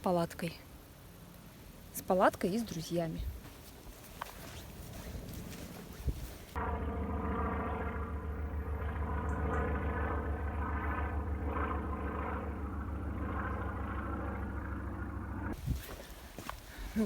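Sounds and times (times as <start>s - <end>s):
engine running with low drone: 4.5s - 15.7s.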